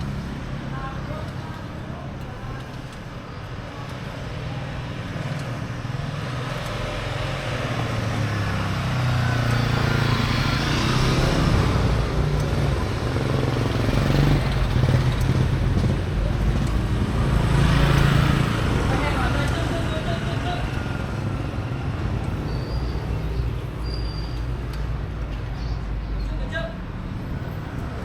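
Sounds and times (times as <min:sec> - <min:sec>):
vehicle engine running: 0:09.3 - 0:22.4.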